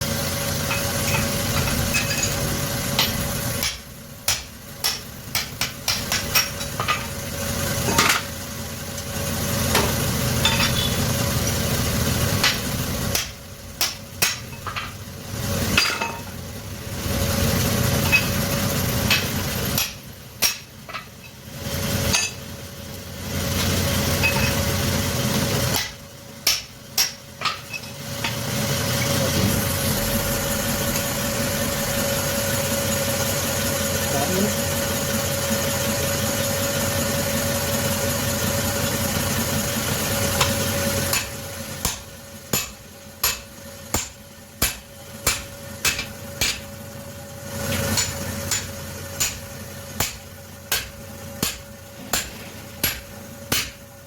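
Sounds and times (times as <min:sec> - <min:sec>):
workshop machine humming: 0:00.0 - 0:54.0
metallic knocks and clinks: 0:00.7 - 0:02.4, 0:09.8 - 0:10.9, 0:23.6 - 0:24.7.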